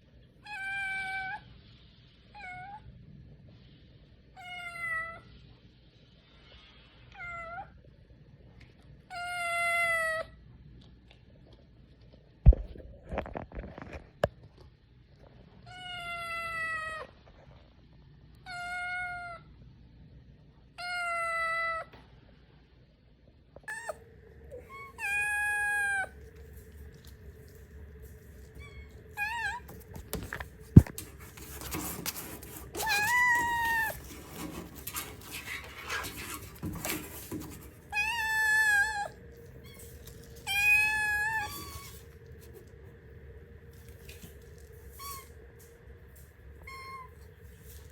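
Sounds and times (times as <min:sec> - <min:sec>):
cat meowing: 0:23.7 - 0:27.1, 0:28.5 - 0:30.9, 0:32.8 - 0:34.4, 0:37.9 - 0:42.1, 0:44.9 - 0:45.4, 0:46.6 - 0:47.3.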